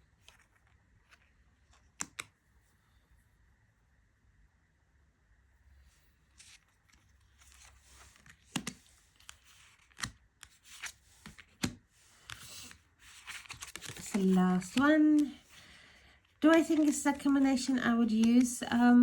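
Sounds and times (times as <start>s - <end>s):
cards sliding and rustling: 0.1s - 2.3s, 6.2s - 18.6s.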